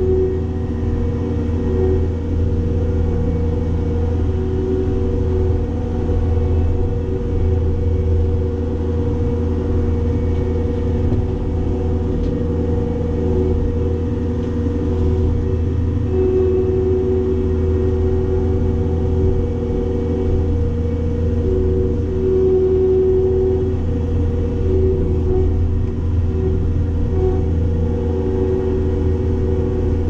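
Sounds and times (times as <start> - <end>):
diesel engine running: 0.0 - 30.0
steady mower whine: 0.0 - 30.0.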